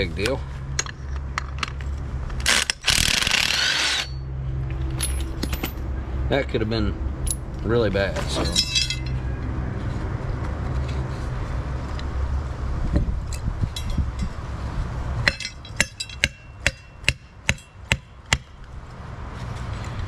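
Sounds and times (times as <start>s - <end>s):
sharp metallic taps: 15.2s - 18.6s.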